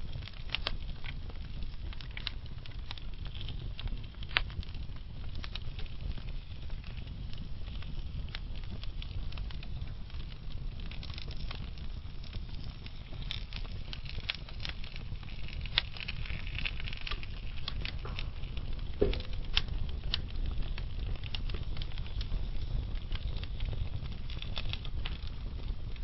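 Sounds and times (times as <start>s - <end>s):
fire crackles and pops: 0.0s - 26.0s
wood fire rumble: 0.0s - 26.0s.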